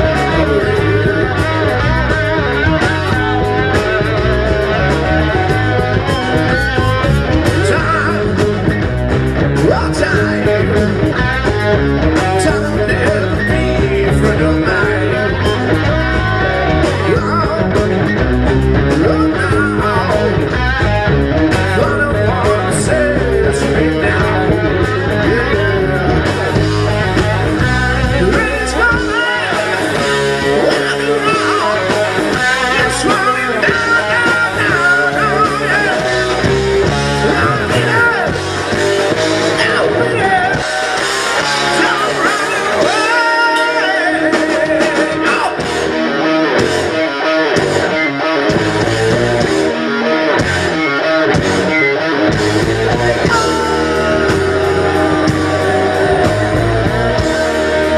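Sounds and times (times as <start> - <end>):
electric guitar: 0.0 - 57.9
rock band playing live: 0.0 - 57.9
person singing: 9.6 - 18.2, 18.8 - 20.6, 21.5 - 45.7, 52.6 - 57.9.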